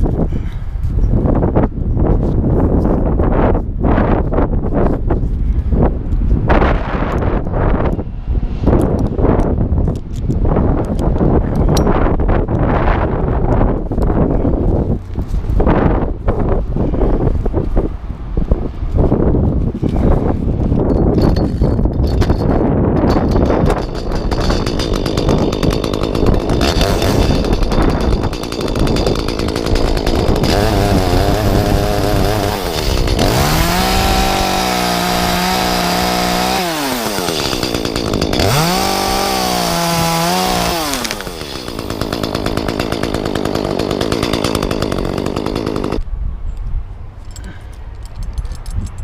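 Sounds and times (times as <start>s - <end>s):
chainsaw cutting wood: 21.2s - 46.1s.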